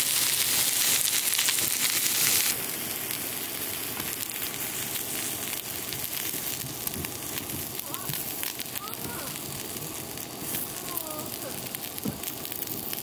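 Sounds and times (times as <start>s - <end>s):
crackling with pops: 0.0s - 13.0s
food sizzling in a pan: 0.0s - 13.0s.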